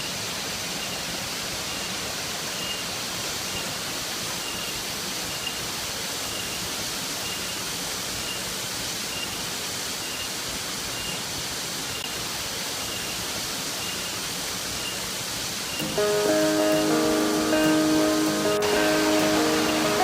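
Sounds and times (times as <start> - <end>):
waterfall rushing into pool: 0.0 - 20.0
faint high chirp: 2.6 - 2.8.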